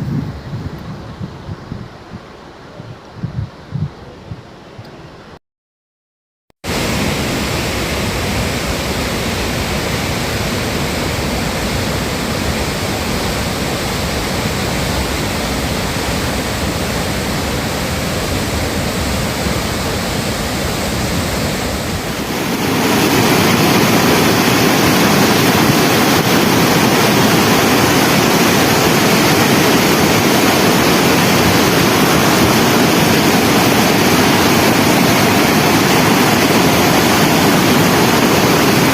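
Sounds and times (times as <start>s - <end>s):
floodwater rushing: 6.7s - 38.9s.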